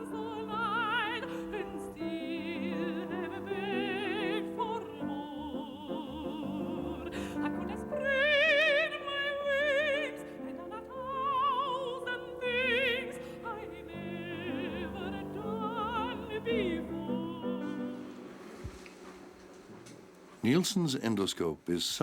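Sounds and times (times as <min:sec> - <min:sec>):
operatic soprano singing: 0:00.0 - 0:18.3.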